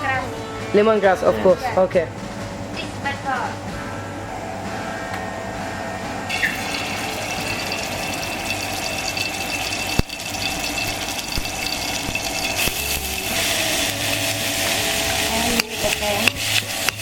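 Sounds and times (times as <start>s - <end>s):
tap water running: 6.3s - 17.0s.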